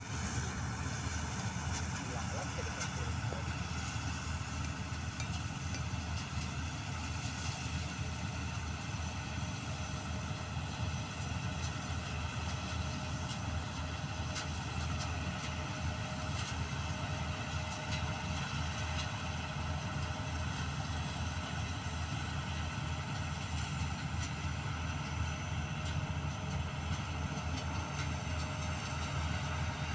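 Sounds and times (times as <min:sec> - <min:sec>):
motor rumbling: 0:00.0 - 0:06.3.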